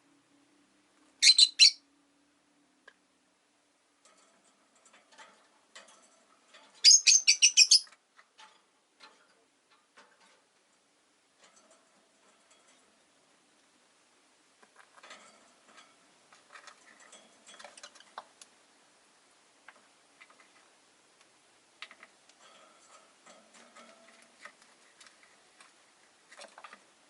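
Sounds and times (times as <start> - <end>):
soft bird twitters: 1.2 - 1.8, 6.8 - 7.9
birds clicking on cage bars: 4.0 - 10.8, 11.4 - 13.0, 14.6 - 18.6, 19.6 - 20.8, 21.8 - 27.0.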